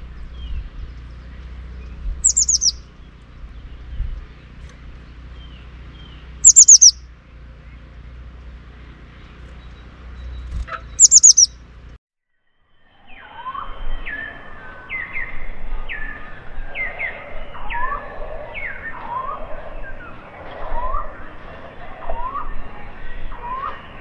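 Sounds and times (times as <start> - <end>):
downward sweeping bird calls: 2.2 - 2.9, 5.4 - 7.0, 10.8 - 11.5
loud high bird chirps: 2.2 - 2.9, 5.4 - 7.0, 10.3 - 11.6.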